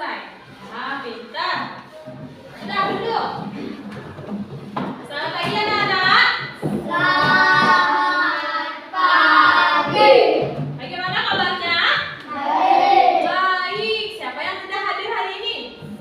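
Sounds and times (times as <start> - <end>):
children singing: 6.8 - 10.5, 12.3 - 13.3.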